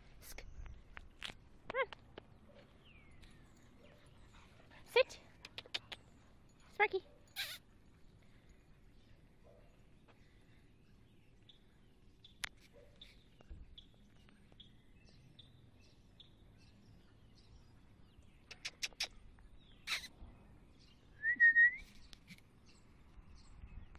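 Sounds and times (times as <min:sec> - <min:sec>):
small bird chirps: 0:07.3 - 0:07.6, 0:18.2 - 0:20.2.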